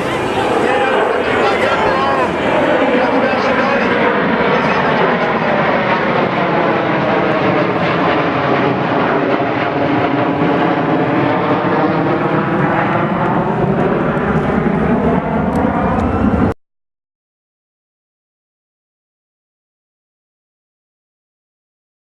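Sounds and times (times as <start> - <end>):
airplane flying low overhead: 0.0 - 16.6.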